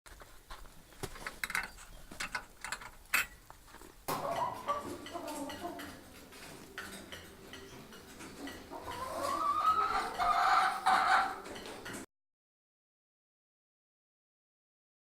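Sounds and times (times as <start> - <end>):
hen clucking: 4.1 - 12.0.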